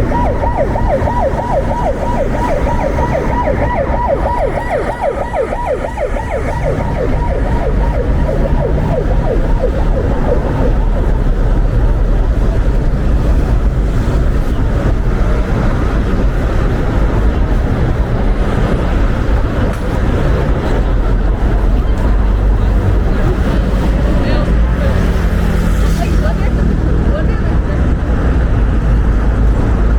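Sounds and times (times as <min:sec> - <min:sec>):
siren yelping: 0:00.0 - 0:11.9
traffic and wind rumble: 0:00.0 - 0:29.9.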